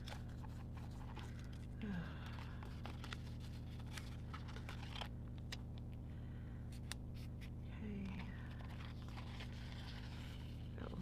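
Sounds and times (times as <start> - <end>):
paper rustling: 0.0 - 5.1, 8.0 - 11.0
steady low hum: 0.0 - 11.0.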